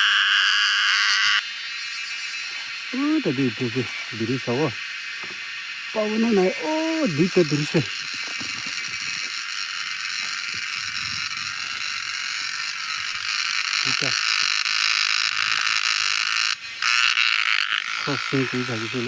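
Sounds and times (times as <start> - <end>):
cicadas buzzing: 0.0 - 19.0
faint voices: 2.9 - 4.8, 5.9 - 9.2.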